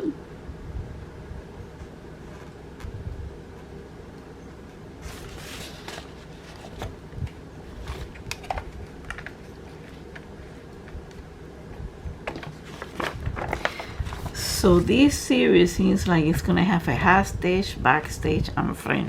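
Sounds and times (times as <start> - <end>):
steady low hum: 0.0 - 19.0
paper and packaging rustling: 5.0 - 11.2, 12.3 - 15.1.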